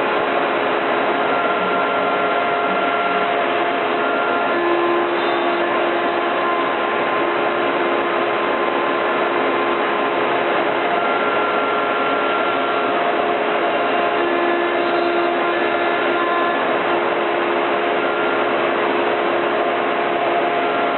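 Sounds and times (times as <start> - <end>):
router motor whine: 0.0 - 20.9
router bit cutting wood: 0.8 - 8.1, 10.8 - 18.4.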